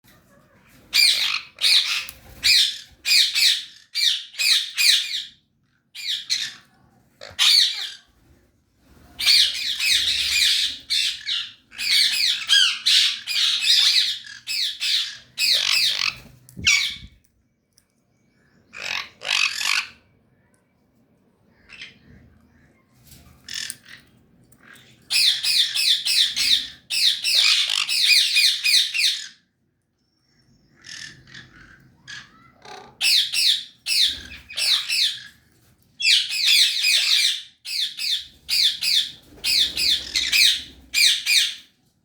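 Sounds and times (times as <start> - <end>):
parrots screeching: 0.9 - 5.4, 6.0 - 8.1, 9.2 - 17.2, 18.7 - 20.0, 23.5 - 29.4, 30.8 - 35.4, 36.0 - 41.7.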